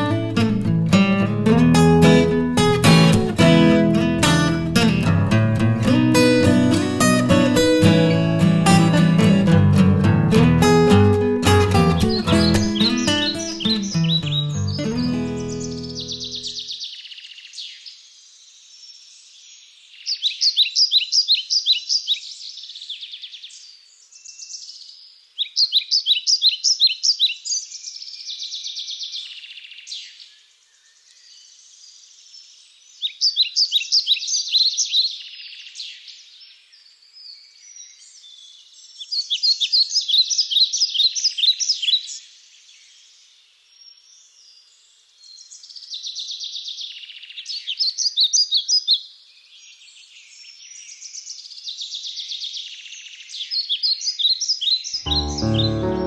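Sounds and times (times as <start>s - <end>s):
songbird singing high notes: 0.0s - 16.6s.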